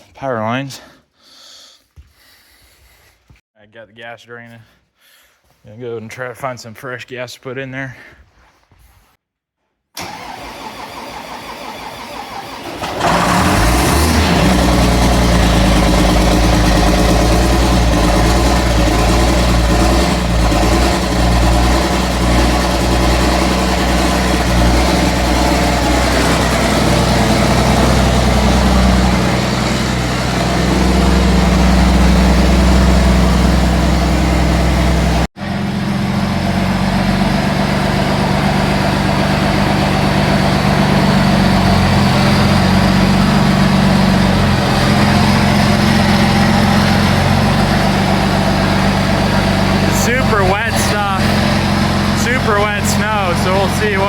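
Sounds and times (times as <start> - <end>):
vehicle engine idling: 12.8 - 54.0.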